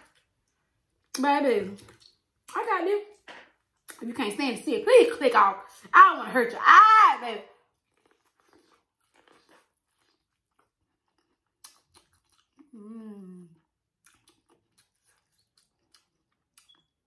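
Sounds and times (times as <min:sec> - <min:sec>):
chewing sweet corn: 0:07.7 - 0:17.0
person humming: 0:12.7 - 0:13.6.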